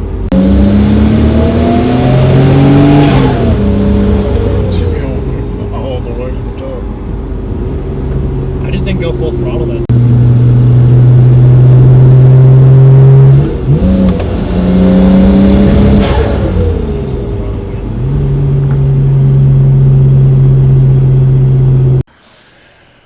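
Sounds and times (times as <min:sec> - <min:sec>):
car engine revving from inside: 0:00.3 - 0:05.7, 0:09.6 - 0:22.0.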